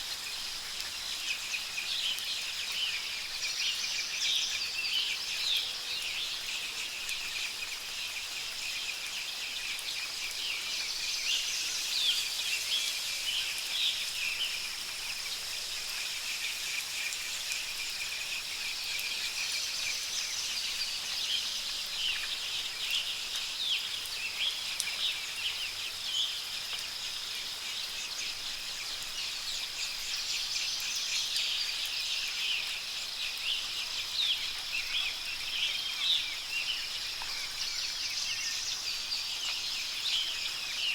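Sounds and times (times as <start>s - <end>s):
high-pitched hiss: 10.2s - 22.9s.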